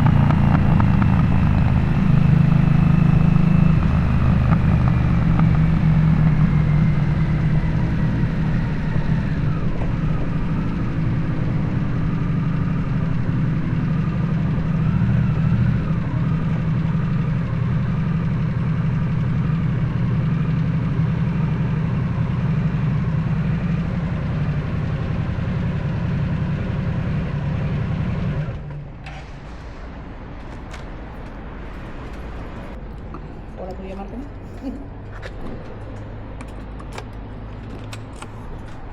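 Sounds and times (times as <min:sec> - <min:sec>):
motorcycle engine rumbling: 0:00.0 - 0:38.9
clicks: 0:34.6 - 0:38.9.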